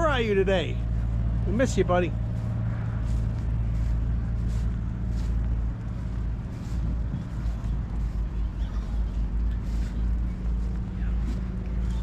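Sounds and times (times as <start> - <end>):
truck diesel engine humming: 0.0 - 12.0.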